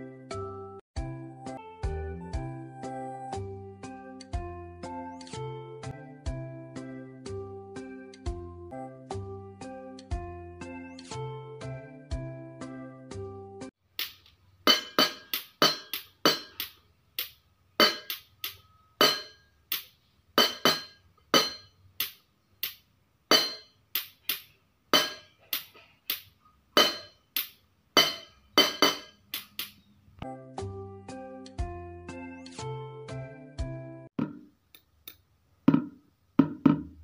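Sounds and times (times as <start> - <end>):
sharp clinks of struck hard object: 14.0 - 24.4, 25.0 - 25.7, 26.8 - 29.8.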